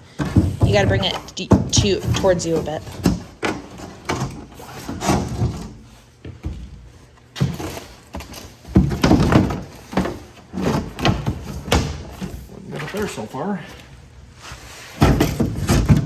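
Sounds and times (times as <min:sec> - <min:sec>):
wooden panel bumping and knocking: 0:00.2 - 0:04.4.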